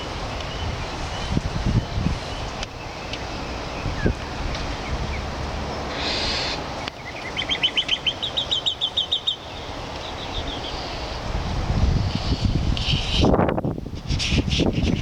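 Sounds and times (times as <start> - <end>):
bird harsh raspy note: 5.8 - 6.7
bird sharp repeated chirps: 5.9 - 10.9.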